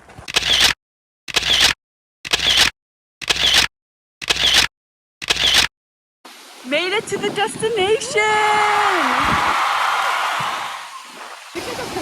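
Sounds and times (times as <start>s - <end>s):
camera shutter click and whir: 0.3s - 5.7s.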